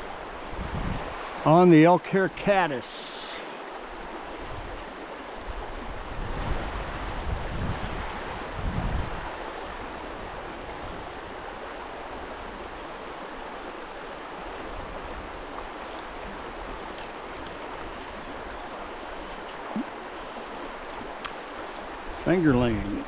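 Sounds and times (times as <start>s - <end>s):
wind buffeting microphone: 0.0s - 1.3s, 3.8s - 19.0s
stream rushing over rocks: 0.0s - 23.0s.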